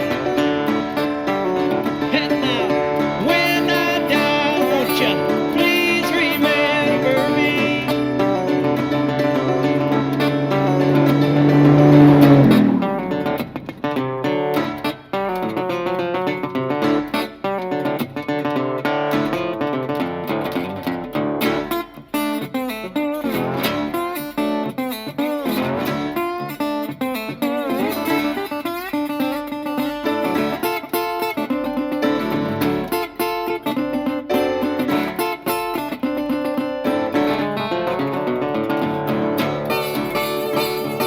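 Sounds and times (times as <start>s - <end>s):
plucked acoustic guitar: 0.0s - 41.0s
person singing blues: 1.3s - 13.3s.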